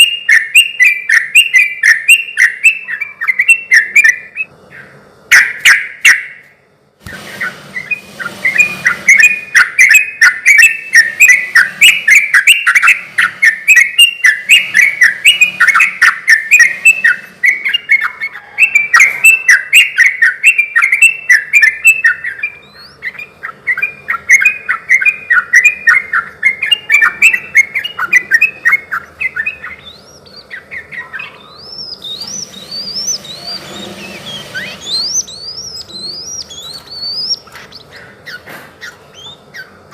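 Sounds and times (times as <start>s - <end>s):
bird singing chirping notes: 0.0s - 6.5s, 7.3s - 39.9s
faint rising whistles: 26.6s - 38.0s.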